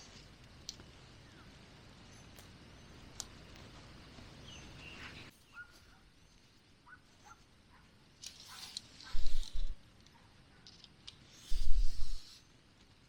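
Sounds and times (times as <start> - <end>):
background hiss: 0.0 - 13.0
faint bird calls: 4.4 - 7.9.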